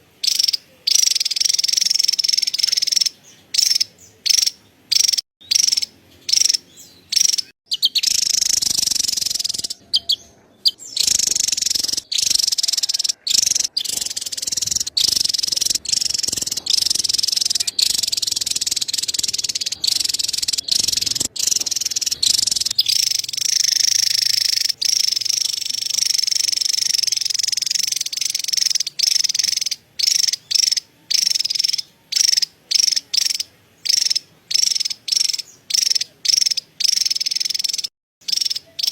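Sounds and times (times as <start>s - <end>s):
bird rapid chattering call: 0.2s - 38.9s.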